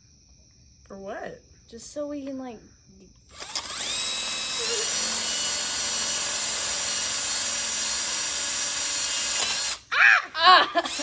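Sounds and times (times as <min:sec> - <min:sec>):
electric drill whining: 0:03.3 - 0:09.9, 0:10.6 - 0:11.0.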